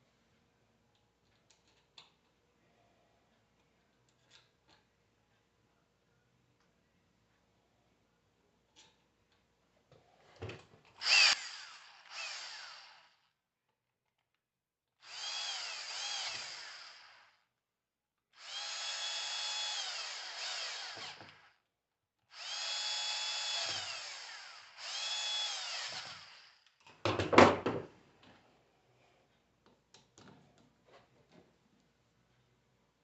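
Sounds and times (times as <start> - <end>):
power tool motor whining: 11.0 - 13.2, 15.0 - 17.4, 18.4 - 21.5, 22.3 - 26.6.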